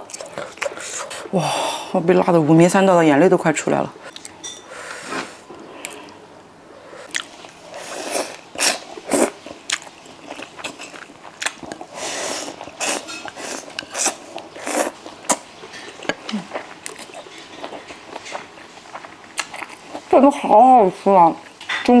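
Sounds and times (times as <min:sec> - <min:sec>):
biting and chewing noodles: 0:07.0 - 0:20.1.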